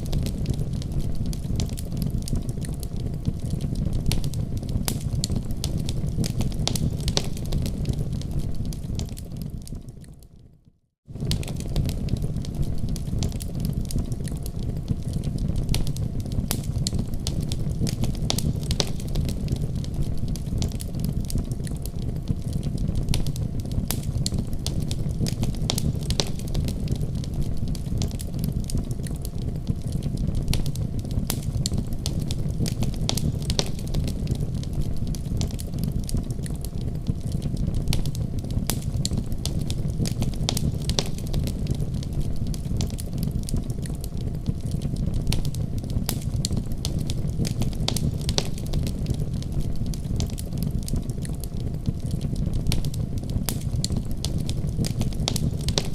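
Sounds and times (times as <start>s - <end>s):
low rumble of fire: 0.0s - 55.9s
wood fire crackling: 0.0s - 55.9s.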